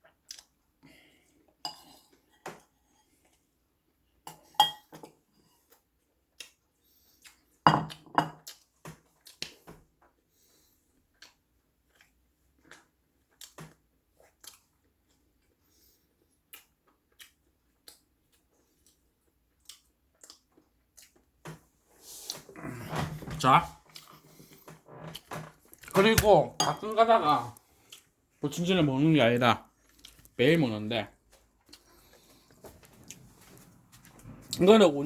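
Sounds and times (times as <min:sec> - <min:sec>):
chewing: 0:00.2 - 0:00.6, 0:05.6 - 0:07.6, 0:08.4 - 0:09.7, 0:10.4 - 0:21.3, 0:23.9 - 0:26.0, 0:27.5 - 0:28.2, 0:29.7 - 0:30.4, 0:31.3 - 0:34.2.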